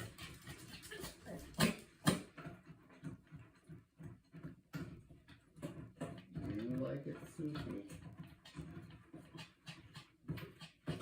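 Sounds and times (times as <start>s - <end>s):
small dog panting and snuffling: 6.4s - 11.0s.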